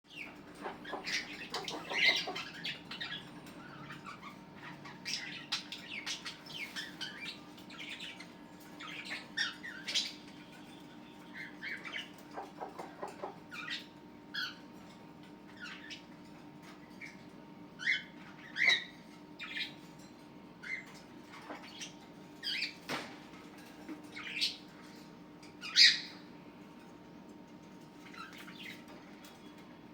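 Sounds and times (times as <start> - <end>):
small parrots chirping and squawking: 0.1 - 29.8.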